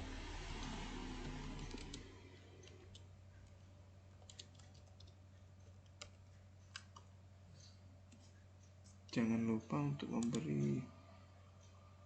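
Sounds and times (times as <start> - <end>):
faint low hum: 0.0 - 12.0
keyboard keystrokes: 1.6 - 2.0, 10.2 - 10.6.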